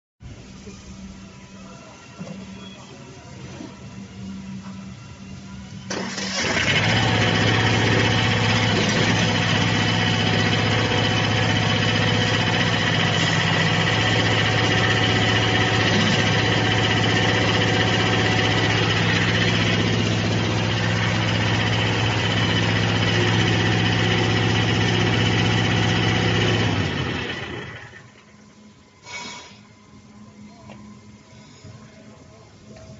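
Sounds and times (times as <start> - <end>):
loader engine starting and running: 5.6 - 29.7.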